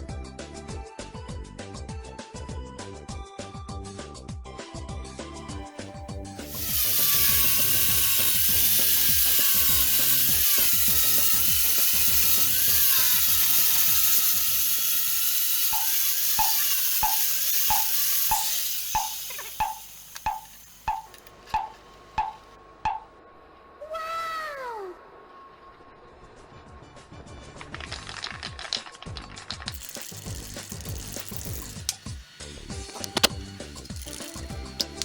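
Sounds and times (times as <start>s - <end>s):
power tool cutting metal: 6.3s - 23.0s, 29.7s - 35.0s
evenly spaced clicks: 6.4s - 23.0s, 29.7s - 35.0s.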